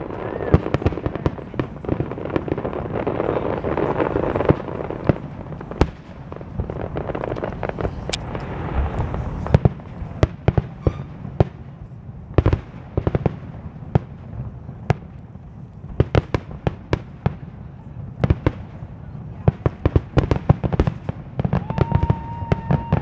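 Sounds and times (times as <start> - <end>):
fireworks bursting: 0.0 - 15.2.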